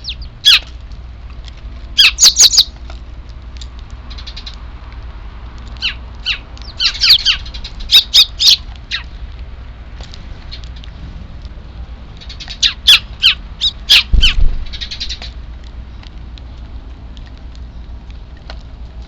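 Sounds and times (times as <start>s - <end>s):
sparrow chicks chirping: 0.0s - 0.7s, 1.9s - 2.8s, 4.0s - 4.7s, 5.6s - 9.2s, 10.0s - 11.0s, 11.6s - 16.3s
steady low hum: 0.0s - 19.0s.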